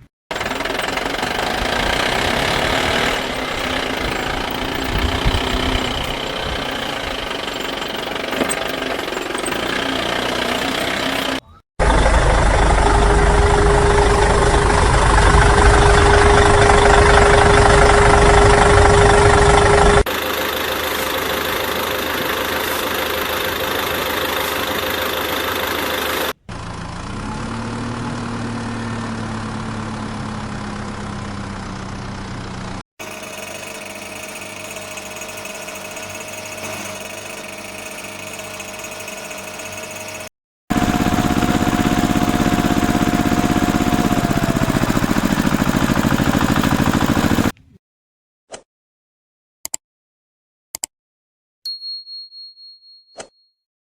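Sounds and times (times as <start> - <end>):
toy vehicle engine noise: 0.0 - 47.6
steady whine: 0.6 - 26.4.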